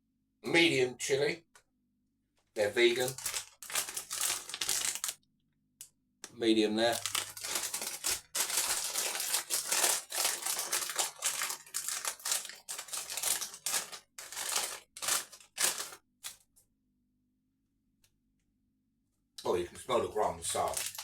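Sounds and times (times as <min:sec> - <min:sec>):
plastic packet crinkling: 0:02.6 - 0:05.2, 0:06.8 - 0:16.4, 0:20.4 - 0:21.0.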